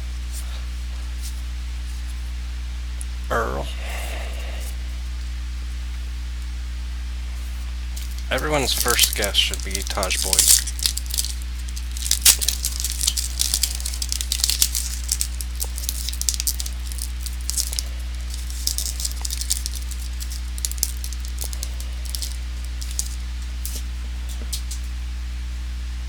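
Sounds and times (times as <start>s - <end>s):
low electrical hum: 0.0s - 26.0s
trading cards flicking and rustling: 8.0s - 25.0s.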